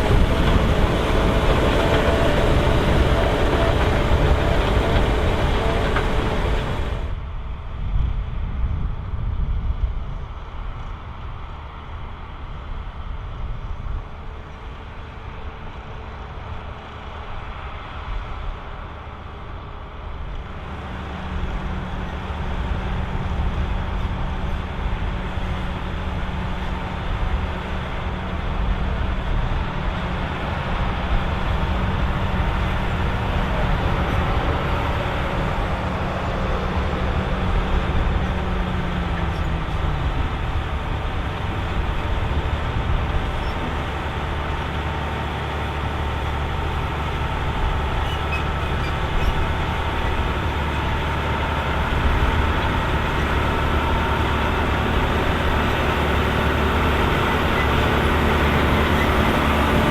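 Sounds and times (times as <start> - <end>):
harvester working noise: 0.0 - 7.8, 10.1 - 59.9
tractor engine drone: 0.0 - 59.9.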